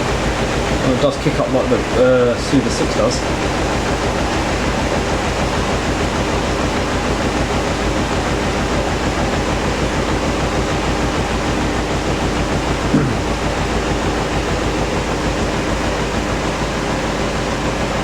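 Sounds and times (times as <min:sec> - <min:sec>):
washing machine shaking: 0:00.0 - 0:18.0
washing machine spinning: 0:00.0 - 0:18.0.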